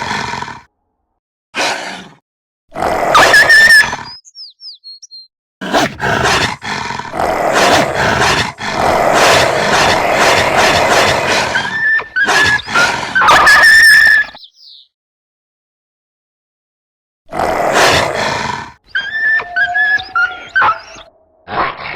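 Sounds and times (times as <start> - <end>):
dog growling and snarling: 0.0 - 0.7, 1.6 - 4.1, 5.6 - 13.5, 17.3 - 18.8
dog whining: 18.9 - 21.9.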